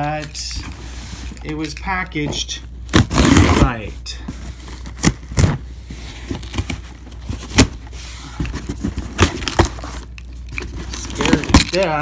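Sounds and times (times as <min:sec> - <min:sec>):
steady low hum: 0:00.0 - 0:12.0
cardboard box scraping and crackling: 0:03.0 - 0:11.4.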